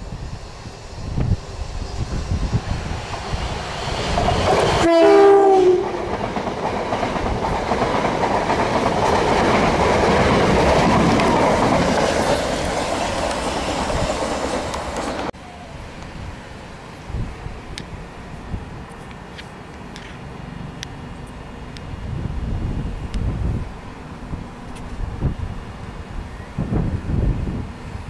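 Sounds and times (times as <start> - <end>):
train wheels rushing on rail: 0.0 - 28.0
train horn: 4.8 - 6.2.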